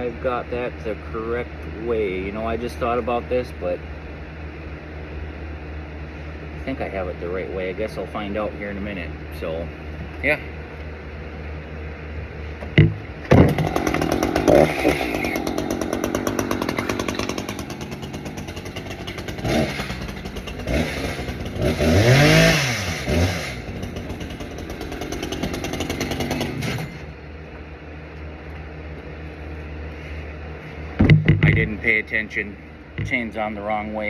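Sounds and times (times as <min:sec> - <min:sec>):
chainsaw engine running: 0:12.6 - 0:27.2, 0:29.9 - 0:33.6
knock: 0:31.0 - 0:31.6.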